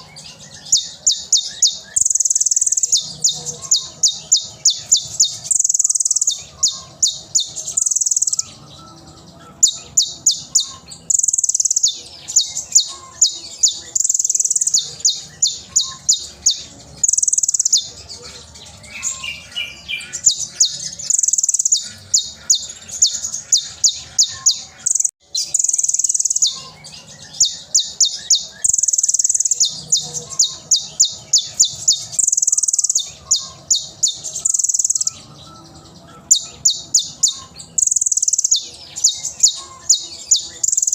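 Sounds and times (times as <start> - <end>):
bird singing chips and trills: 0.0 - 40.9.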